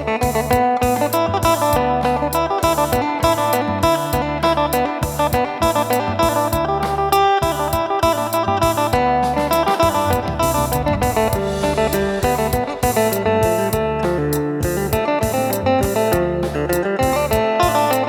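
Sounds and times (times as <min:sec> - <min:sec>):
percussion beat: 0:00.0 - 0:18.0
plucked lute melody: 0:00.0 - 0:18.0
low bass line: 0:09.0 - 0:15.0.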